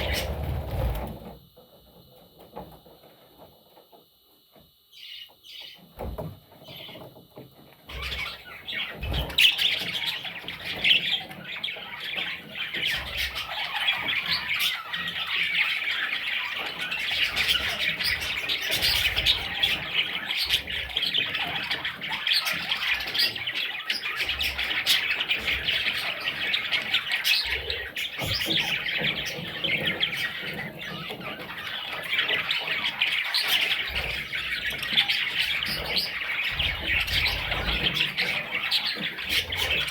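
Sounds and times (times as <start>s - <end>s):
budgerigar chicks squawking: 0.0s - 1.1s, 7.9s - 39.9s.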